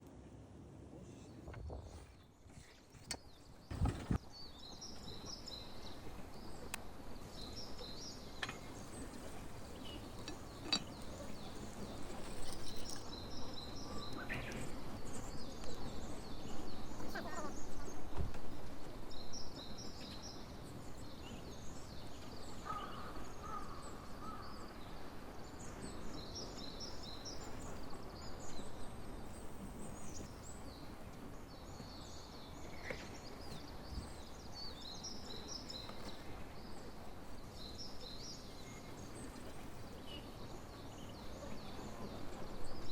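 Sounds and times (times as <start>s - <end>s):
low background noise: 0.0s - 42.9s
songbirds chirping and singing: 1.0s - 42.9s.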